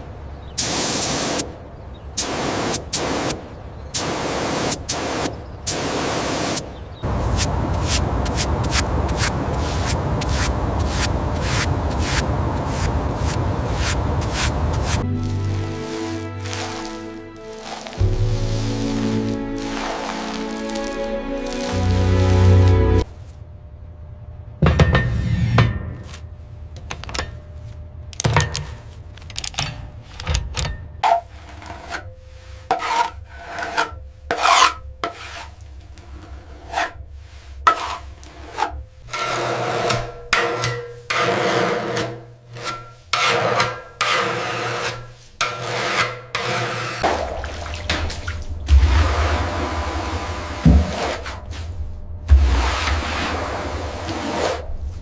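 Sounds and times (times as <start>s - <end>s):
hand tool scraping a surface: 9.8s - 22.7s, 31.0s - 47.0s, 48.7s - 51.7s, 52.3s - 55.0s
low steady rumble: 18.0s - 32.6s, 47.0s - 55.0s.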